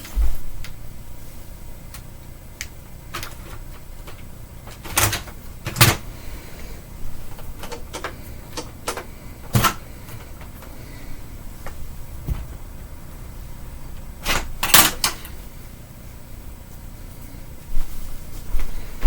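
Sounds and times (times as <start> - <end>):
thuds: 12.2 - 12.6.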